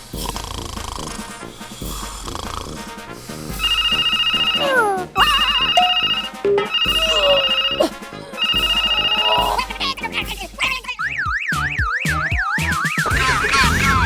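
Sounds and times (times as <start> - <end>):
background music: 0.0 - 14.0
electronic ringing tone: 3.6 - 9.6
cartoon pitch glide effects: 3.6 - 10.2, 10.8 - 14.0.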